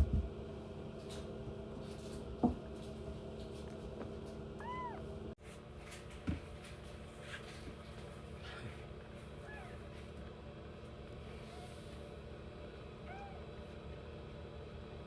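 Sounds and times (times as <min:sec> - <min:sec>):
kitten mewing: 0:04.6 - 0:05.1, 0:09.4 - 0:09.9, 0:13.0 - 0:13.5.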